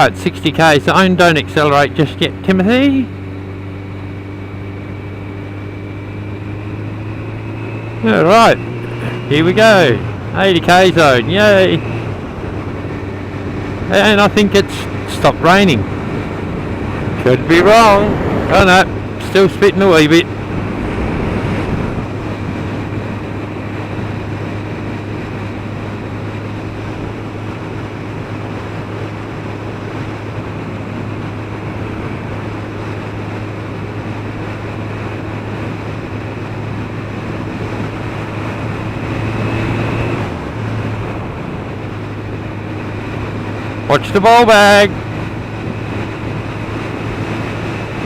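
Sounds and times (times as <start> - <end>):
motorcycle engine cruising: 0.0 - 48.0
wind noise on microphone: 15.8 - 19.3, 20.2 - 43.9.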